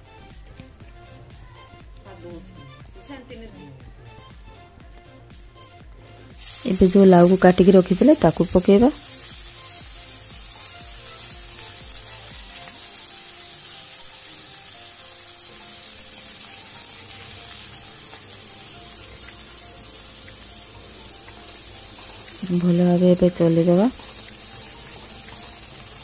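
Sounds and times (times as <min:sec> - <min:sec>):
faint background music: 0:00.0 - 0:26.0
food sizzling in oil: 0:06.2 - 0:26.0.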